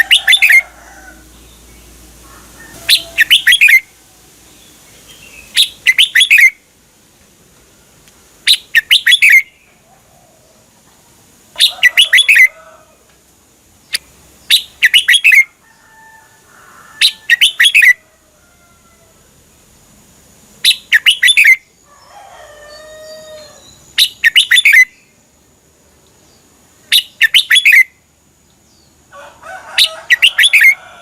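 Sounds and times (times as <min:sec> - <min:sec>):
bulbul singing warbled phrases: 0:00.0 - 0:02.0, 0:02.9 - 0:03.9, 0:04.6 - 0:06.6, 0:08.4 - 0:09.7, 0:11.5 - 0:12.6, 0:13.8 - 0:15.5, 0:17.0 - 0:18.0, 0:20.6 - 0:21.7, 0:23.4 - 0:25.1, 0:26.8 - 0:28.0, 0:29.8 - 0:30.8.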